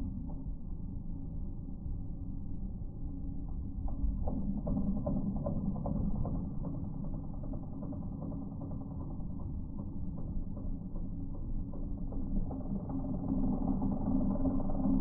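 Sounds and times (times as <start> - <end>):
stump grinder low rumble: 10.9 - 15.0.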